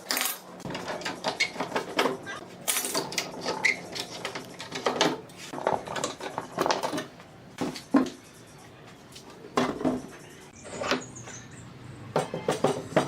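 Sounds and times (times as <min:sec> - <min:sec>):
hard objects clattering and scraping: 0:00.0 - 0:08.2, 0:09.3 - 0:11.3.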